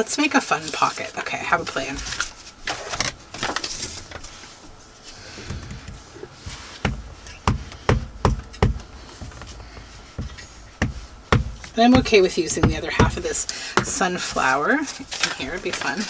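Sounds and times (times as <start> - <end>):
paper rustling: 0.6 - 16.0
taps and knocks on table: 6.8 - 14.0.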